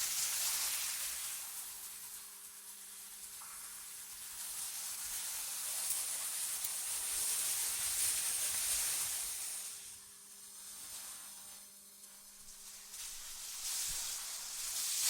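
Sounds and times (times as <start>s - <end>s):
synthetic wind hiss: 7.2s - 15.0s.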